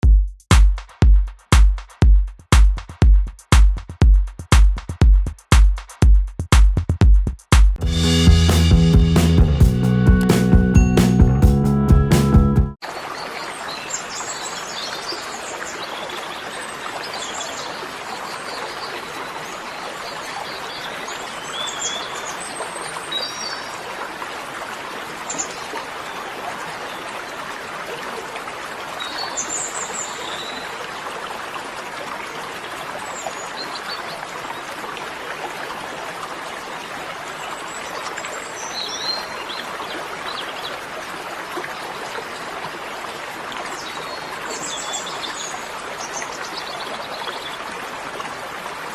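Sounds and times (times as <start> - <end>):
running water: 12.8 - 48.9.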